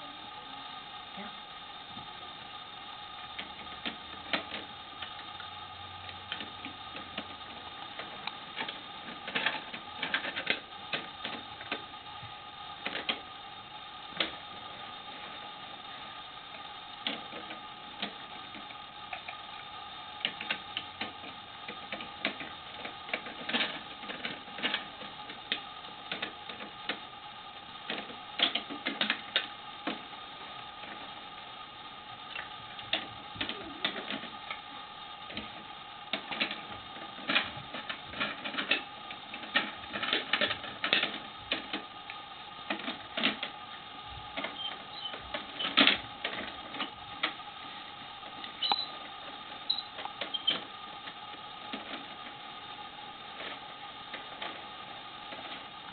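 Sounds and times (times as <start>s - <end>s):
steady high hum: 0.0s - 55.9s
plastic toy parts clicking: 27.9s - 30.0s, 36.1s - 43.6s.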